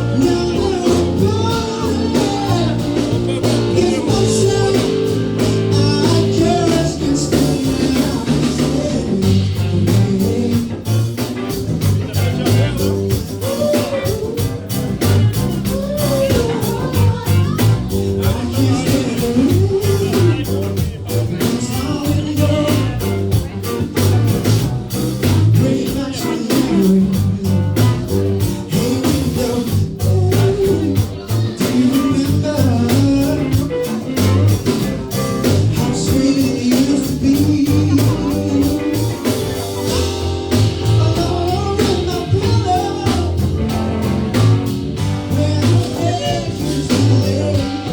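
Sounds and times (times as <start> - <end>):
bass line: 0.0 - 47.9
person singing: 0.0 - 47.9
steady drum beat: 0.0 - 47.9.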